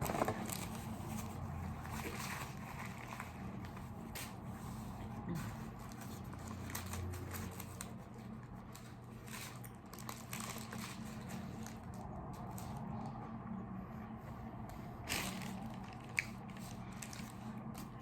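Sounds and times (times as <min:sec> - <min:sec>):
crisp food crackles: 0:05.7 - 0:13.2, 0:15.1 - 0:18.0.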